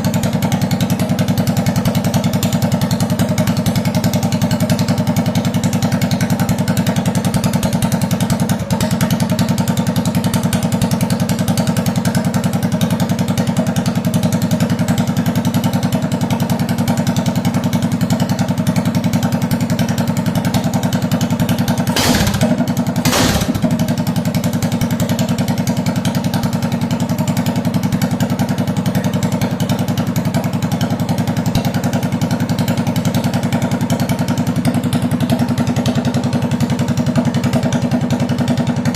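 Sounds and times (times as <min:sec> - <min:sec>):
small engine idling: 0:19.0 - 0:24.4.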